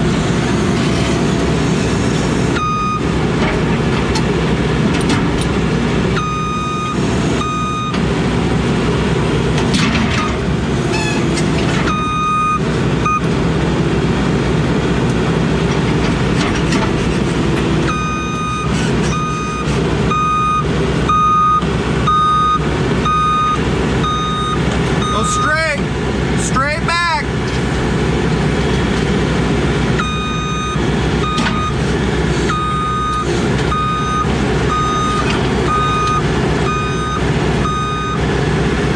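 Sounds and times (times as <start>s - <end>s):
diesel engine running: 0.0s - 38.9s
backup alarm beeping: 2.6s - 3.1s, 6.2s - 8.0s, 11.9s - 13.3s, 17.9s - 25.7s, 30.0s - 31.8s, 32.5s - 38.2s.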